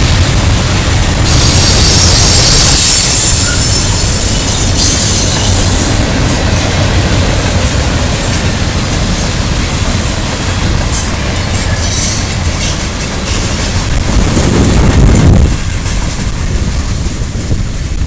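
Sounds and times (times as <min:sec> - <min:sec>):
freight train rolling past: 0:00.0 - 0:18.0
high wheel squeal: 0:01.3 - 0:06.0, 0:11.0 - 0:13.8.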